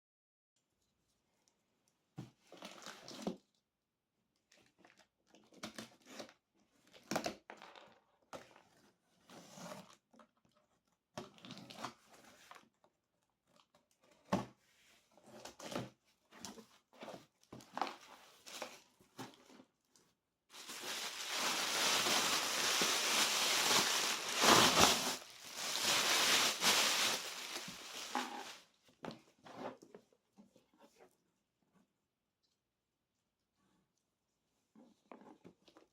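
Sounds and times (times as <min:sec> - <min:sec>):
packaging crinkling and tearing: 0:20.5 - 0:28.6
packaging rustling and tapping: 0:20.6 - 0:28.6.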